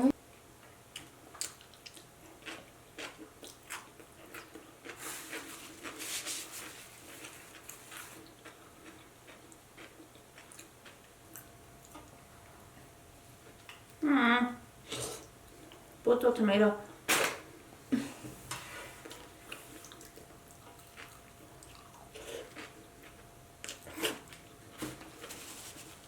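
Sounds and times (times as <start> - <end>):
close-miked chewing: 0.6 - 6.0, 6.6 - 12.2, 19.0 - 24.6
rustling crunching noise: 4.8 - 8.2, 24.7 - 26.0.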